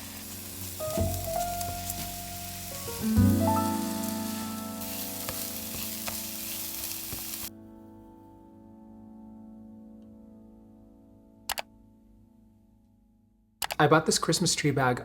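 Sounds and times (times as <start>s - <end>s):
food sizzling in a pan: 0.0s - 7.5s
soft background music: 0.0s - 15.0s.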